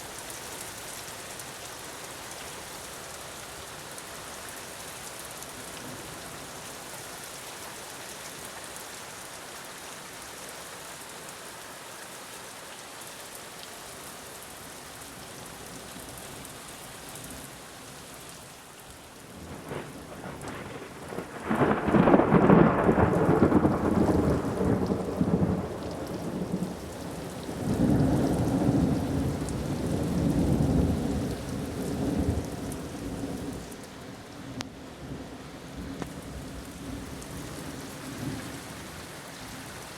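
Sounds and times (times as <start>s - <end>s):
steady rain falling: 0.0s - 39.9s
thunderclap rumbling: 19.4s - 26.7s.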